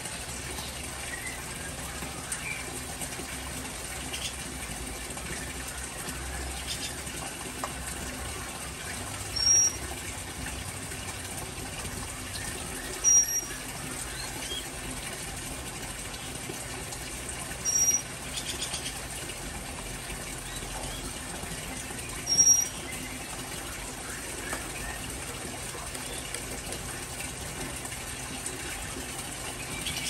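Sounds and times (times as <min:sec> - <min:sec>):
bird high call: 0:09.4 - 0:09.8.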